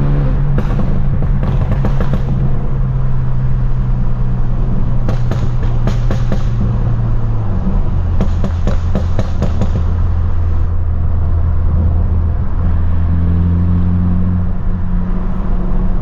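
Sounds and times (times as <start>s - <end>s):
car exhaust drone: 0.0s - 16.0s
exhaust crackles and pops: 0.3s - 2.9s.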